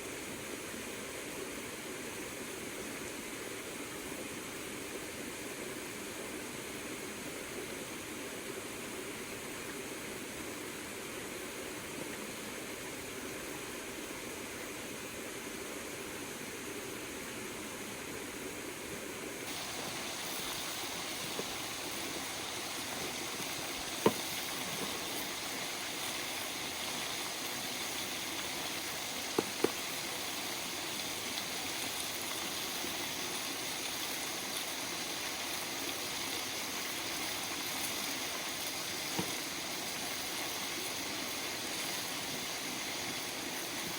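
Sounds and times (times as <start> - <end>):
river water rushing: 19.4 - 31.8.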